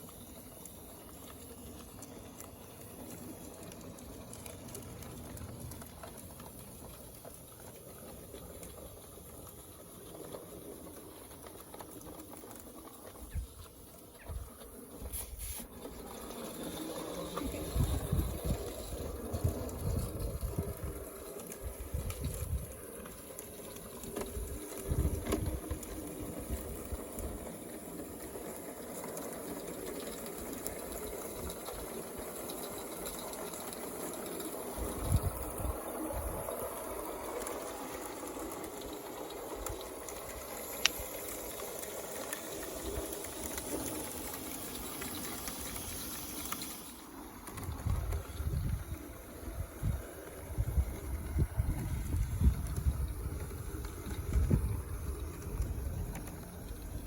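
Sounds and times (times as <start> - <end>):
model steam locomotive hissing: 0.0 - 57.0
wind buffeting microphone: 17.2 - 23.1, 24.2 - 27.4, 34.7 - 36.6, 47.4 - 57.0.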